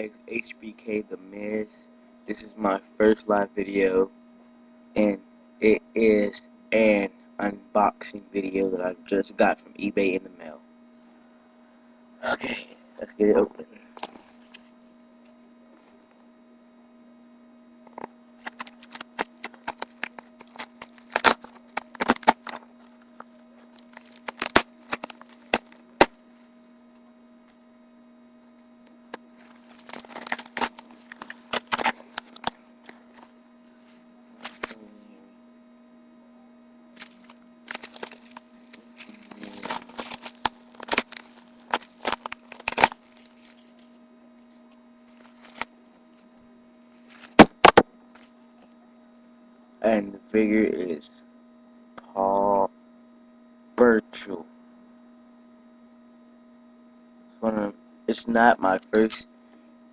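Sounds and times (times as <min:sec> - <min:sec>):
electrical mains hum: 0:00.0 - 0:59.9
packaging crackling and tearing: 0:18.4 - 0:26.1, 0:29.4 - 0:33.3, 0:34.4 - 0:34.8, 0:37.0 - 0:43.9, 0:45.1 - 0:45.7.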